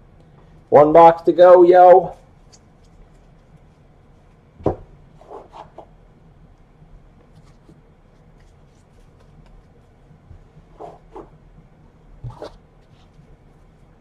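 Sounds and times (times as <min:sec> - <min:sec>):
thump on table: 0:04.6 - 0:04.9.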